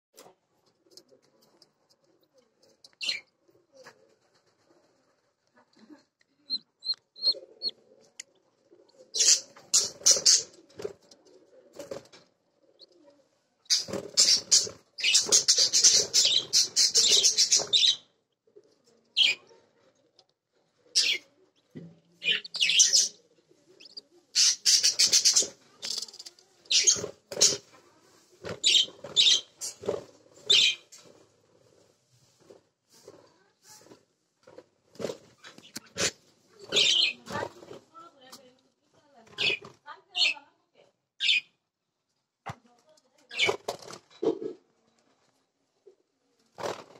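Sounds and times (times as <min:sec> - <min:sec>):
bird chirps: 0:06.5 - 0:07.8, 0:22.2 - 0:23.2.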